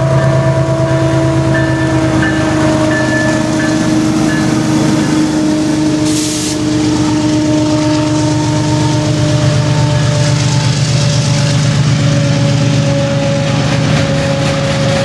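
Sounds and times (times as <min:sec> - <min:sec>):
freight train passing: 0:00.0 - 0:15.0
short hiss: 0:06.1 - 0:06.6.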